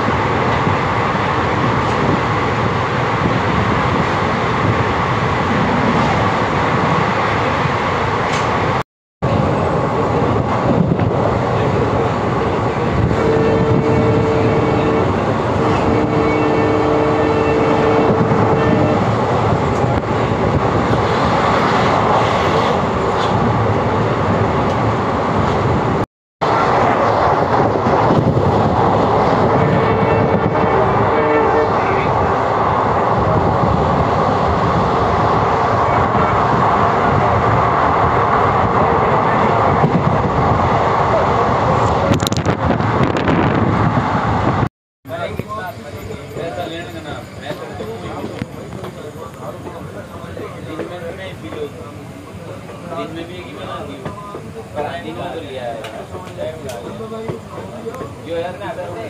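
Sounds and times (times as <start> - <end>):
train rumbling: 0.0 - 59.0
two-pitch train horn: 13.1 - 19.1, 29.5 - 32.0.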